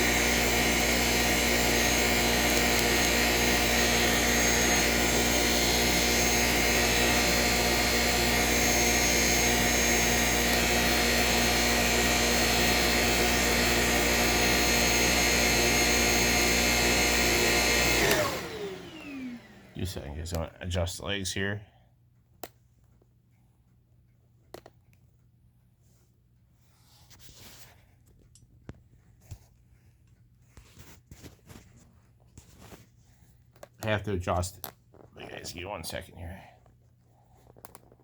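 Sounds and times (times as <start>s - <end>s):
vacuum motor winding down: 0.0s - 20.3s
vacuum cleaner running: 0.0s - 20.4s.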